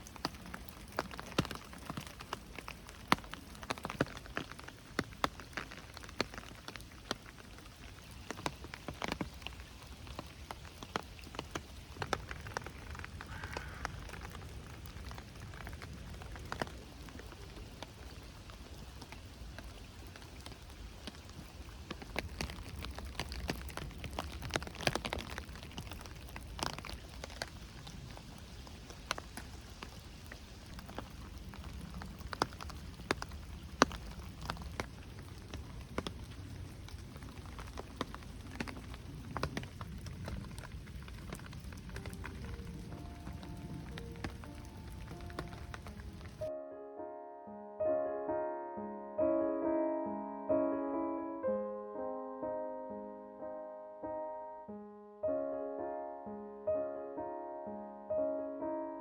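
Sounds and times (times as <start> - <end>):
raindrops tapping: 0.0 - 46.5
soft hiss of rain: 0.0 - 46.5.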